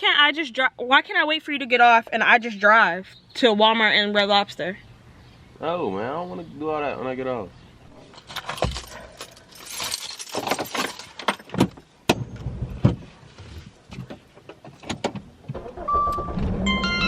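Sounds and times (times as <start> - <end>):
handling clicks and knocks: 8.0 - 13.0
keys jangling: 8.1 - 11.5.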